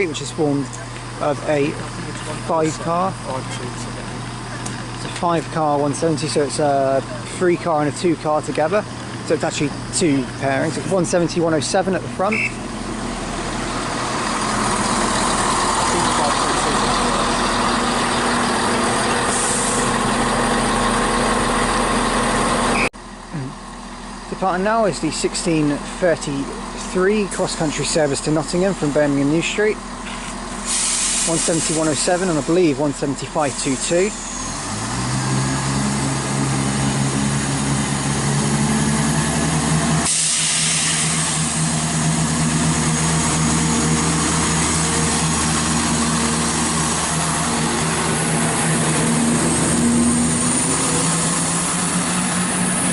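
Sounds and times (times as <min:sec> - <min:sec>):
train diesel engines running: 0:00.0 - 0:52.9
loud hiss: 0:19.1 - 0:20.1, 0:30.6 - 0:32.7, 0:39.9 - 0:52.9.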